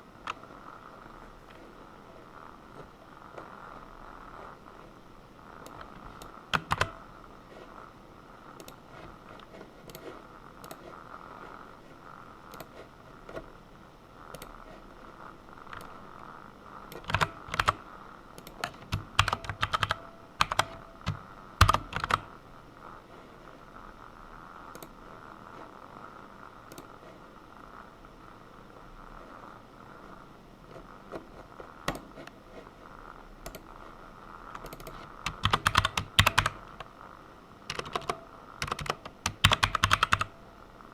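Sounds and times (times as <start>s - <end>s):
computer keyboard typing: 5.6s - 7.0s, 12.5s - 13.4s, 14.3s - 14.5s, 15.6s - 16.0s, 16.9s - 22.3s, 31.8s - 32.4s, 33.4s - 33.7s, 34.5s - 36.9s, 37.7s - 40.4s.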